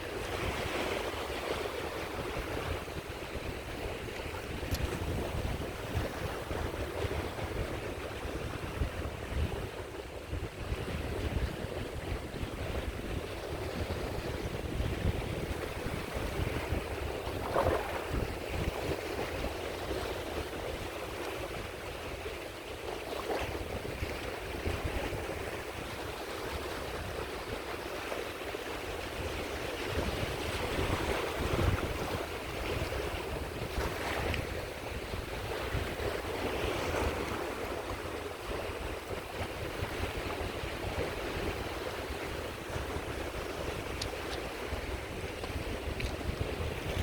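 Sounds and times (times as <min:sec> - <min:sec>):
sea waves washing onto shore: 0:00.0 - 0:47.0
wind on microphone: 0:00.0 - 0:47.0
bright water splashes: 0:17.2 - 0:18.6.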